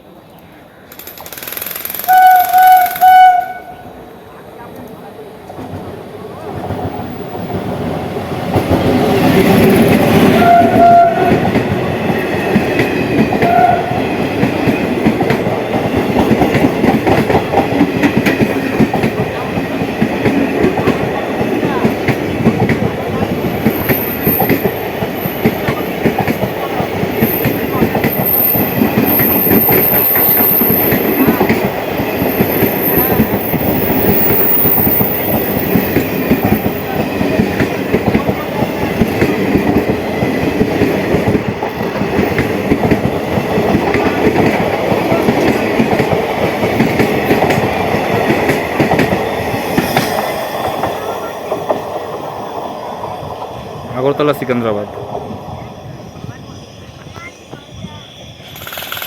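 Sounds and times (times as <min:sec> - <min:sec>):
train horn blasts: 0:02.1 - 0:03.9, 0:10.3 - 0:11.5, 0:13.4 - 0:14.0
train wheels clattering over rail joints: 0:58.5 - 0:59.0.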